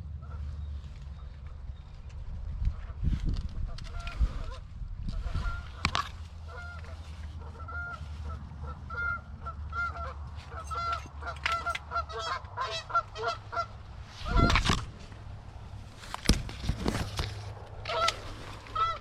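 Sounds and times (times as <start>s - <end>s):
steady low rumble: 0.0s - 19.0s
goose honking and clucking: 3.7s - 14.8s, 17.7s - 19.0s.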